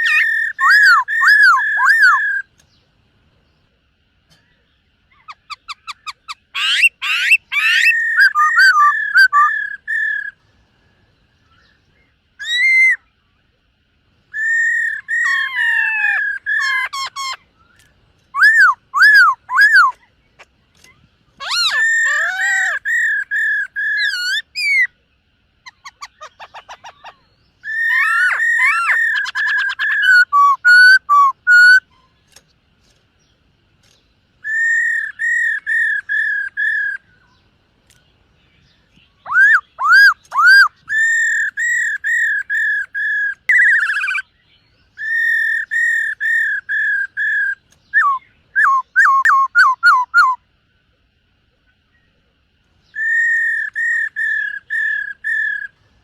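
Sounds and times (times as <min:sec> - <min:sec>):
bird singing whistled phrases: 0:00.0 - 0:02.7, 0:05.2 - 0:10.4, 0:12.4 - 0:13.1, 0:14.3 - 0:20.0, 0:20.8 - 0:25.0, 0:25.6 - 0:32.1, 0:34.4 - 0:37.4, 0:38.6 - 0:50.4, 0:52.8 - 0:55.8
faint rapid bird trill: 0:00.0 - 0:56.0.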